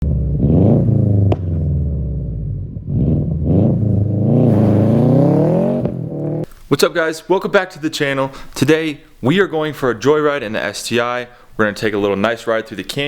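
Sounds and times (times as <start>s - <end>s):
turbocharged car engine revving: 0.0s - 6.5s.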